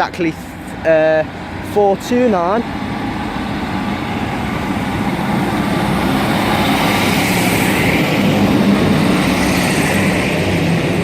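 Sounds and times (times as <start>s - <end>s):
diesel train engine drone: 0.0s - 11.0s.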